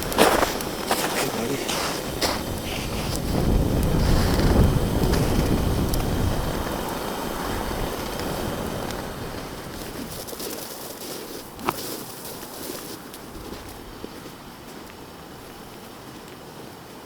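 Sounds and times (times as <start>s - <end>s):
strong wind buffeting microphone: 0.0s - 11.6s.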